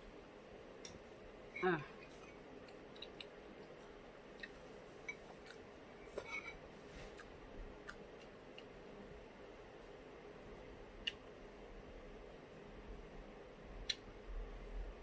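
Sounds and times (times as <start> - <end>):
person chewing food: 2.0 - 5.7.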